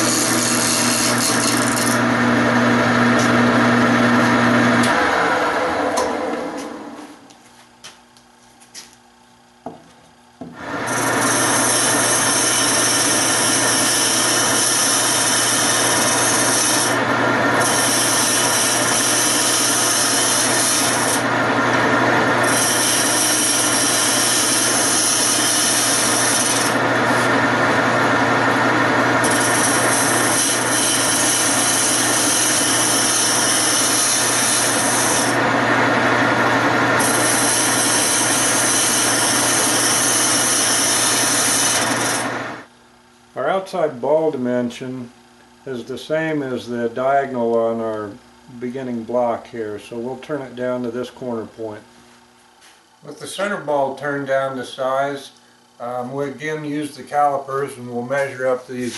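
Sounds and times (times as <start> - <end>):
turning tool scraping wood: 0.0 - 5.0, 10.4 - 35.5, 36.8 - 42.5, 57.8 - 58.9
wood lathe motor hum: 0.0 - 7.0, 10.4 - 42.7.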